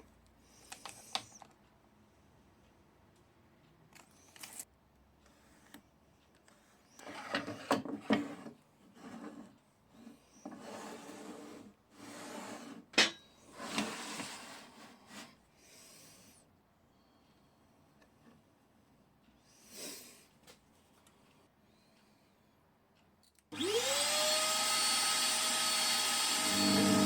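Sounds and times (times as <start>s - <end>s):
wood and tools scraping: 7.0s - 12.9s.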